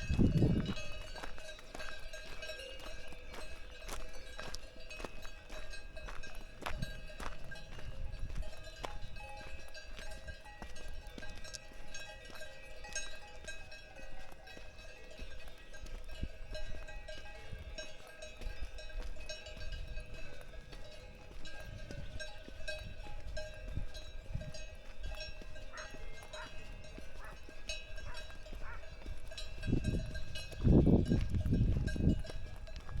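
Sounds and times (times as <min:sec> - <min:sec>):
cowbells clanking: 0:00.0 - 0:33.0
footsteps crunching on trail: 0:00.0 - 0:33.0.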